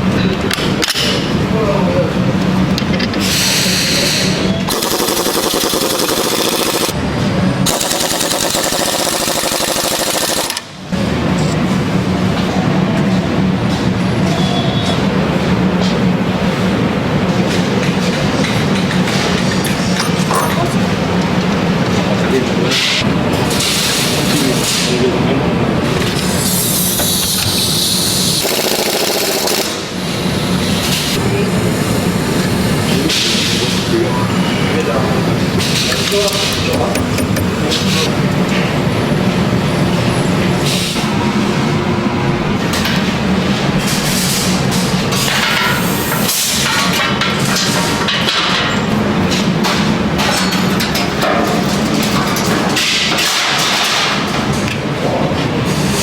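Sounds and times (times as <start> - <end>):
fast mechanical rattle: 4.7 - 7.0, 7.6 - 10.8, 28.2 - 29.9
welding arc crackling: 4.7 - 7.0, 7.7 - 10.7
machinery clattering: 4.7 - 10.9, 34.8 - 41.7.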